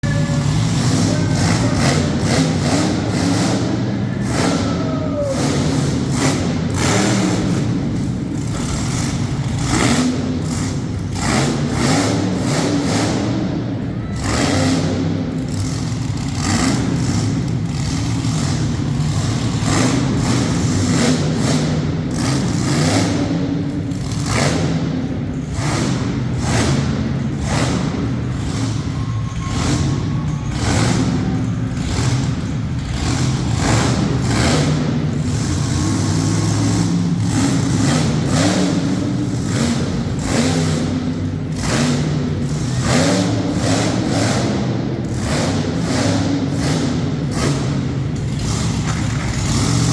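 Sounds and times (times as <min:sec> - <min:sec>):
monster truck engine revving: 0:00.0 - 0:49.9
truck banging over cars: 0:00.0 - 0:49.9.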